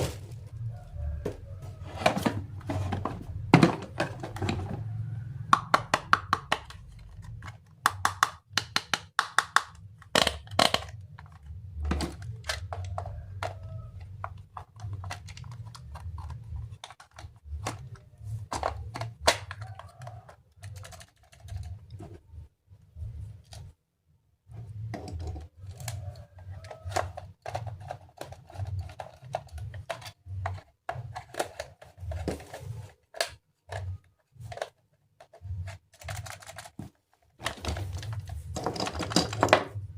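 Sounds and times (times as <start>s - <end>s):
plastic toy parts clicking: 5.5s - 22.0s, 25.0s - 32.4s, 33.0s - 36.8s.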